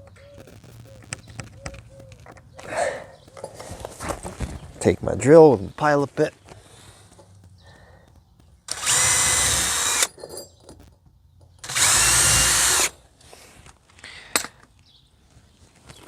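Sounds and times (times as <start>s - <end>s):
cordless drill whining: 8.7s - 10.2s, 11.6s - 13.0s.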